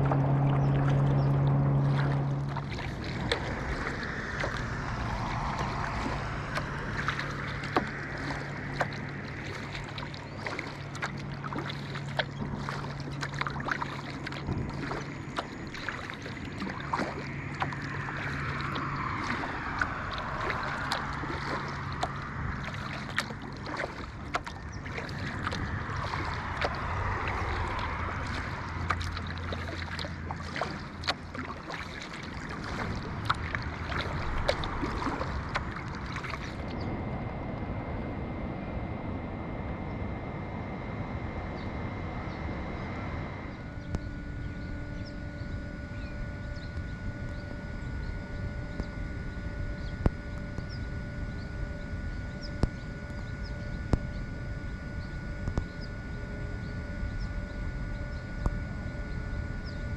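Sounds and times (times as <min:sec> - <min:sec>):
paddle splashes and drips: 0:00.0 - 0:36.9
water washing and wind: 0:00.0 - 0:56.1
faint low hum: 0:00.0 - 0:59.9.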